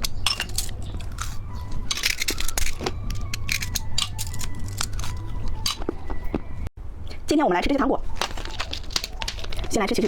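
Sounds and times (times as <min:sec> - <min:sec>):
plastic packaging crinkling: 0:08.1 - 0:10.0.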